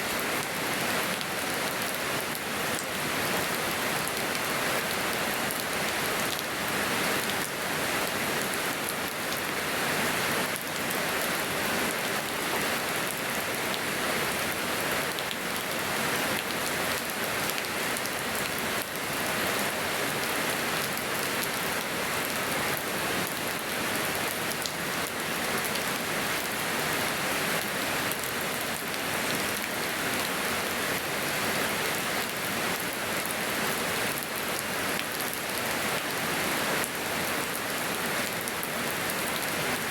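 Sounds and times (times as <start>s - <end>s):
rain pattering on surfaces: 10.4s - 19.2s.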